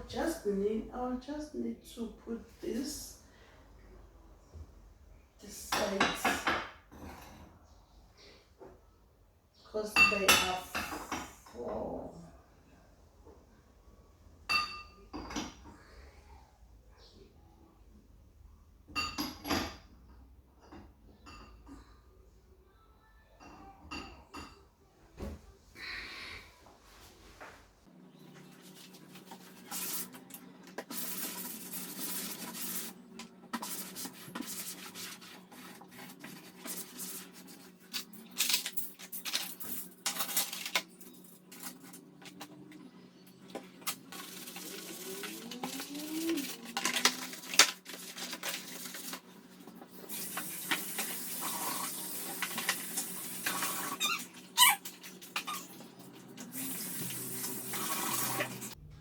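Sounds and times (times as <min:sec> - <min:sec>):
metal cutlery clinking: 0:36.6 - 0:42.5
steady low hum: 0:58.8 - 0:59.0.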